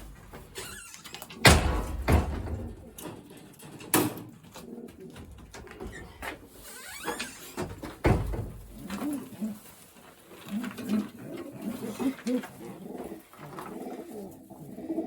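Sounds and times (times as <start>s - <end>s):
handling knocks and clatters: 0.0s - 13.9s
pigeons cooing: 4.0s - 6.2s, 8.4s - 15.0s.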